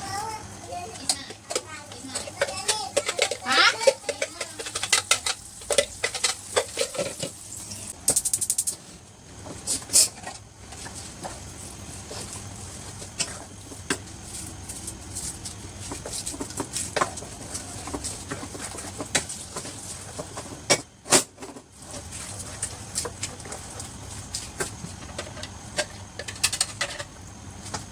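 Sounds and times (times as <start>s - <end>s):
cooking utensils scraping in a pan: 0.7s - 8.8s.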